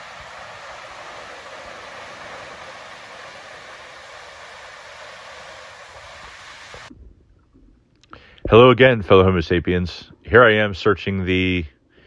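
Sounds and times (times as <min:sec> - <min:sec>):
stream water rushing: 0:00.0 - 0:06.9.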